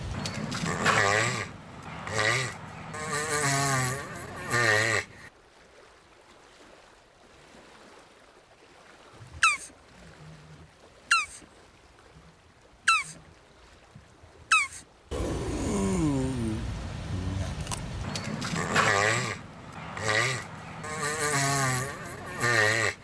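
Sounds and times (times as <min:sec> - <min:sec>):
tortoise wavering call: 0:09.4 - 0:09.7, 0:11.1 - 0:11.5, 0:12.9 - 0:13.2, 0:14.5 - 0:23.0.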